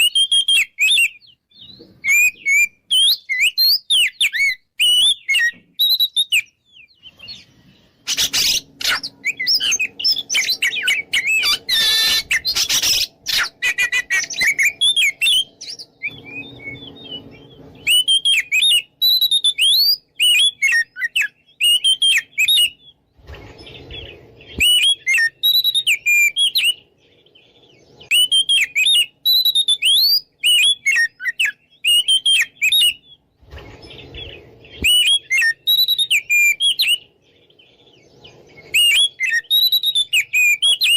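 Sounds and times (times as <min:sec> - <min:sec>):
bird singing whistled phrases: 0:00.0 - 0:07.4, 0:08.1 - 0:23.0, 0:23.8 - 0:26.9, 0:27.5 - 0:33.3, 0:34.1 - 0:37.1, 0:38.6 - 0:40.9
harsh bird chattering: 0:08.0 - 0:15.3.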